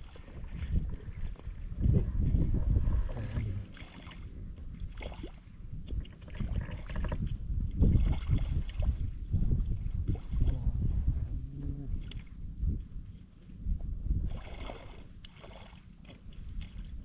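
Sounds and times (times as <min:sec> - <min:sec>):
floodwater sloshing and splashing: 0:00.0 - 0:10.7, 0:14.2 - 0:17.0.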